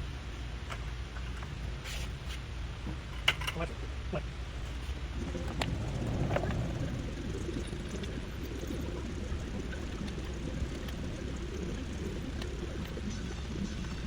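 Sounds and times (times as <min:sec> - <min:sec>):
hose water rushing and splashing: 0:04.7 - 0:14.0.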